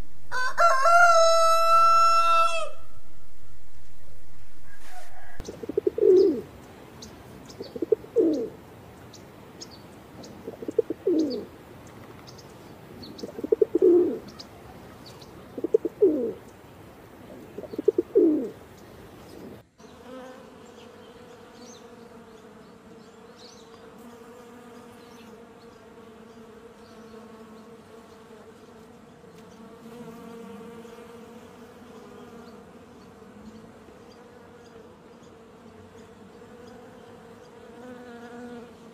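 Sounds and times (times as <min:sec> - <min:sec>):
flying insect buzzing: 0:00.0 - 0:14.5, 0:15.5 - 0:16.5, 0:17.2 - 0:38.9
pigeon cooing: 0:04.6 - 0:06.5, 0:07.6 - 0:08.6, 0:10.2 - 0:11.5, 0:13.1 - 0:14.4, 0:15.4 - 0:16.4, 0:17.2 - 0:18.6
small birds chirping: 0:05.1 - 0:28.8, 0:31.8 - 0:38.6.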